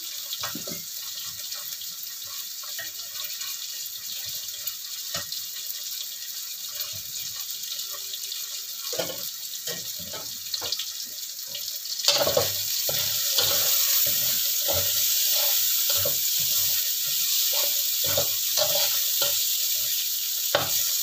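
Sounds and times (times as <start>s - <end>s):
spice paste sizzling in oil: 0.0s - 21.0s.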